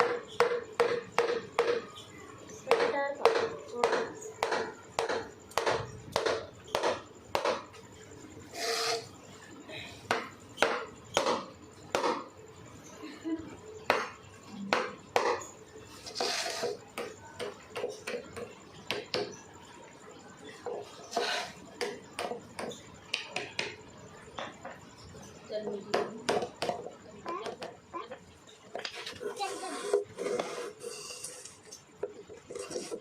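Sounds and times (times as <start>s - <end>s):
brief scraping rubs: 8.5s - 9.1s, 16.0s - 16.8s.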